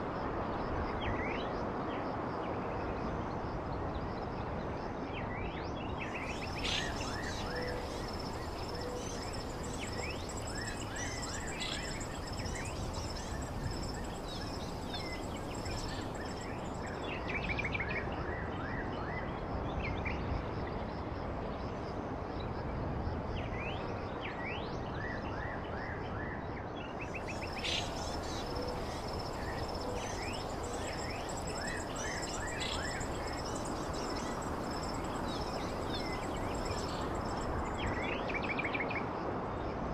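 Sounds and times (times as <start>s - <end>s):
outdoor background hiss: 0.0s - 18.5s, 26.8s - 39.9s
birds chirping: 6.2s - 17.0s, 27.2s - 37.9s.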